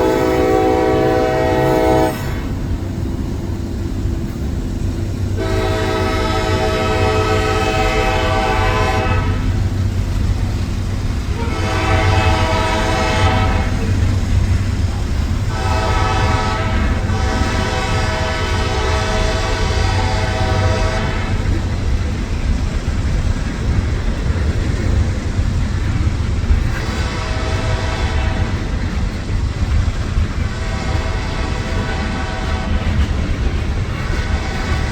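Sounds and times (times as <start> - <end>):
train horn blasts: 0.0 - 2.7, 5.4 - 9.6, 11.3 - 14.2, 15.4 - 21.6, 26.8 - 28.7, 30.3 - 34.9
train rumble: 0.0 - 34.9.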